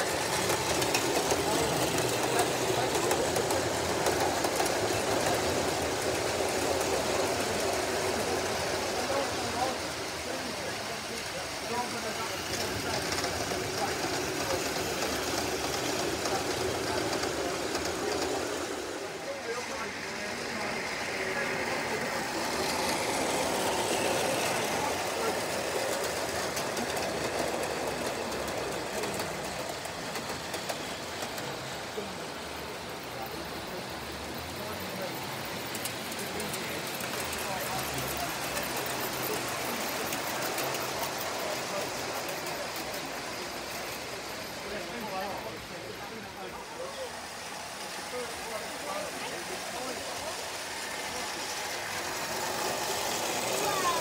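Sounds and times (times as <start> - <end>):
wheels clicking: 0.0 - 11.0
model train wheels rumbling: 0.0 - 54.0.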